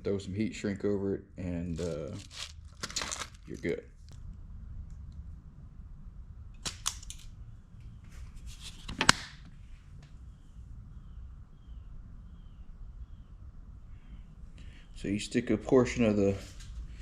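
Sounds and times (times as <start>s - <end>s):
clicks and rustling of wires: 1.8s - 5.2s, 6.6s - 7.4s.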